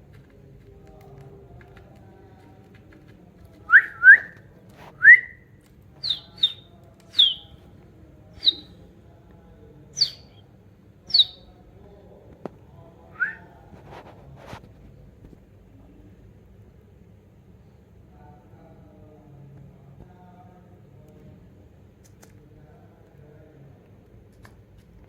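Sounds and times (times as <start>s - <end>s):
budgerigar chirping: 6.0s - 7.5s, 8.4s - 8.7s, 10.0s - 10.4s, 11.1s - 11.5s.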